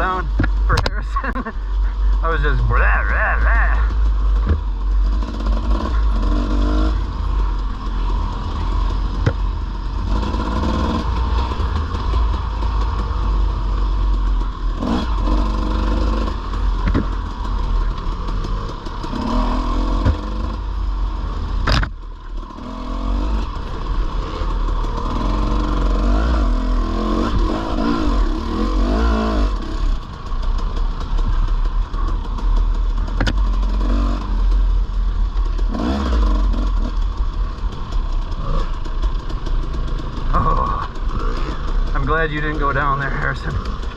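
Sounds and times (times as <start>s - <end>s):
dirt bike engine revving: 0.0s - 43.9s
bike clattering over rough ground: 3.8s - 20.6s.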